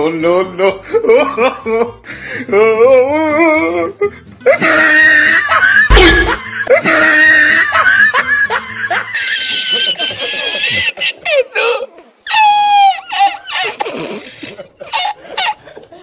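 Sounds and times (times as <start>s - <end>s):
deep boom: 5.9s - 6.5s.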